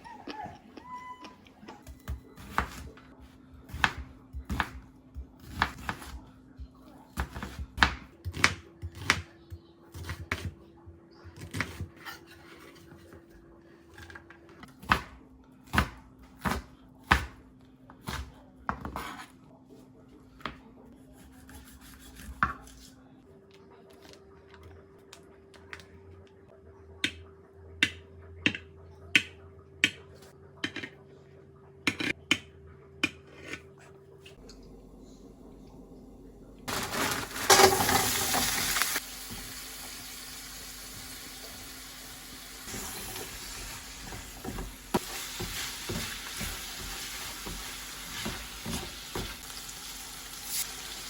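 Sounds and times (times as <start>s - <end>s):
utensils and dishes clinking: 36.7s - 39.0s.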